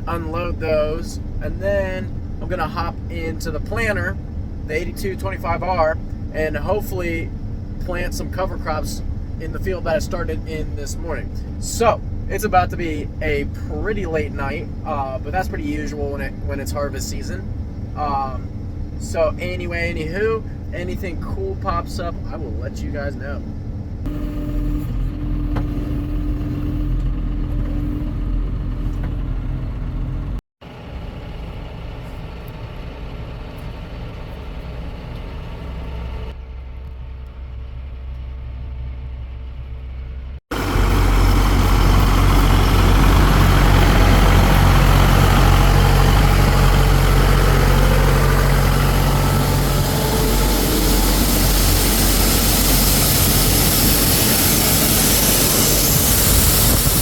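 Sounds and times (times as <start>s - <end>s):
farm machinery engine running: 23.5s - 39.0s, 40.5s - 57.0s
strong rushing noise: 40.5s - 57.0s.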